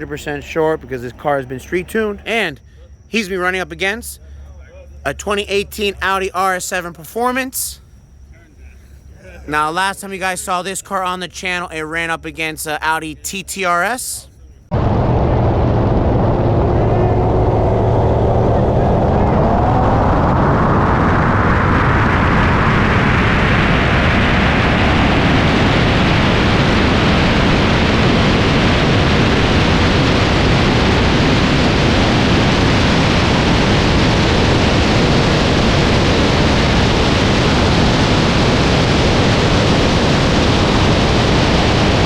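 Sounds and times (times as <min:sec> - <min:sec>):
loud steady rushing noise: 0:14.7 - 0:42.0.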